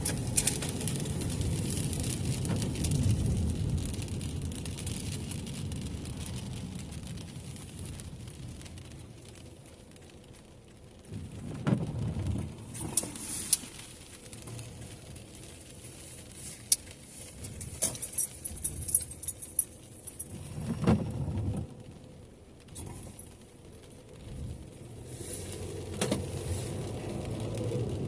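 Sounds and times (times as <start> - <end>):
car keys jangling: 17.3 - 20.4.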